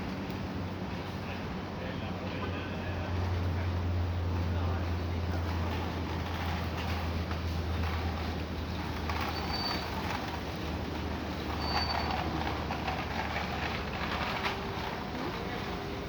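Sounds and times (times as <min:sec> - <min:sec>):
vehicle rumble and hum: 0:00.0 - 0:16.0
short high squeaks: 0:09.2 - 0:10.2, 0:11.5 - 0:12.4.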